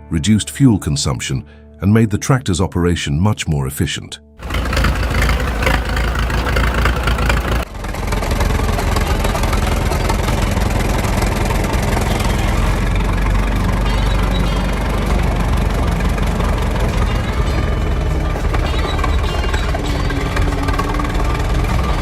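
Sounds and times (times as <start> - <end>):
tractor engine running: 4.4 - 22.0.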